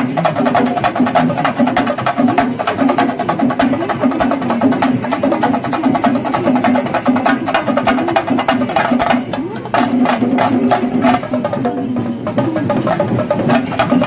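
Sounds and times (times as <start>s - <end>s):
drums beaten fast: 0.0s - 14.0s
wavering pipe melody: 0.0s - 14.0s.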